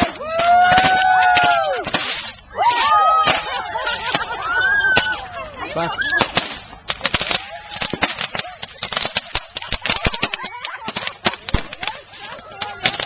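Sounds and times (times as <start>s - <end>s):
sharp crackling pops: 0.0s - 2.5s, 6.0s - 13.0s
faint voices: 0.0s - 13.0s.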